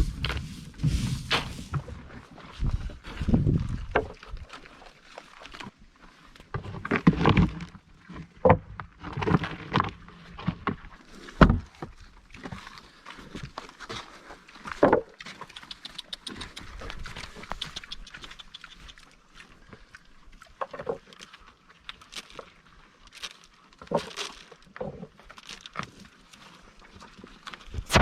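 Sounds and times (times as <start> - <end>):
small clicks and rustles: 11.8 - 27.9.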